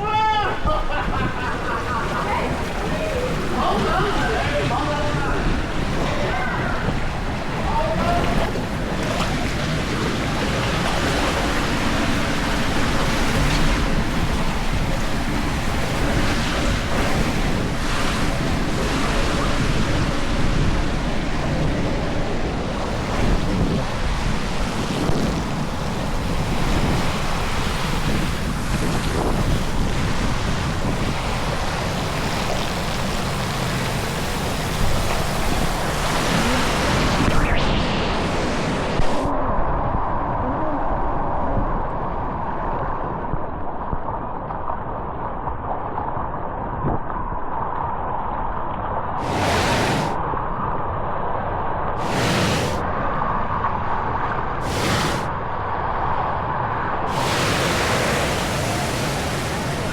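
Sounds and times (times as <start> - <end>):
water rushing: 0.0 - 39.4, 49.2 - 50.2, 52.0 - 52.9, 54.6 - 55.4, 57.0 - 59.9
wind buffeting microphone: 0.0 - 59.9.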